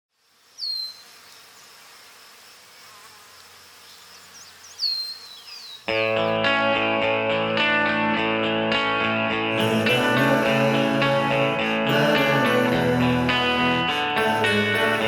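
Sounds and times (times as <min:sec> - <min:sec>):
insect-like buzzing: 0:00.1 - 0:06.3
music: 0:05.9 - 0:15.0.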